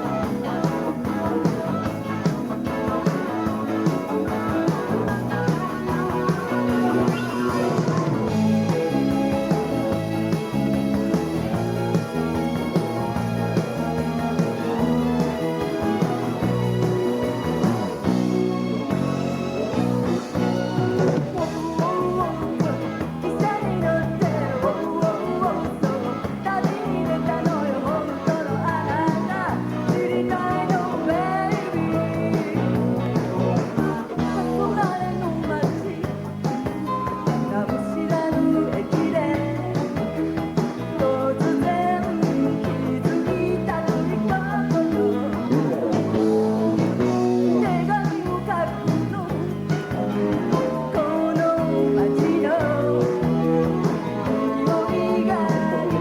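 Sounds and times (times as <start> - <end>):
live pop band music: 0.0 - 56.0
woman singing: 21.2 - 36.6, 37.2 - 40.2, 40.9 - 56.0.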